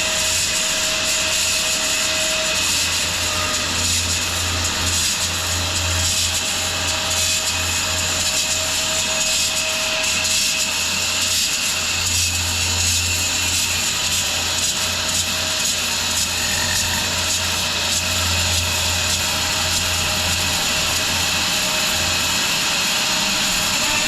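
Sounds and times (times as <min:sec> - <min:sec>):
low hum of mill: 0:00.0 - 0:24.0
saw blade hissing through wood: 0:00.0 - 0:24.0.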